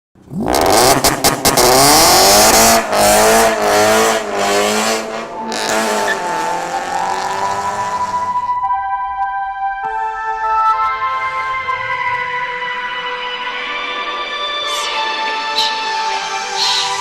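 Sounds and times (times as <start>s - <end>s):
car engine revving hard: 0.2s - 8.4s.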